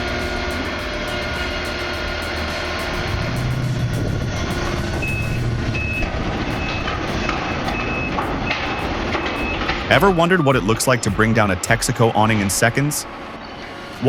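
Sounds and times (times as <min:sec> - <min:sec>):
diesel engine running: 0:00.0 - 0:14.0
reversing alarm beeping: 0:00.0 - 0:14.0.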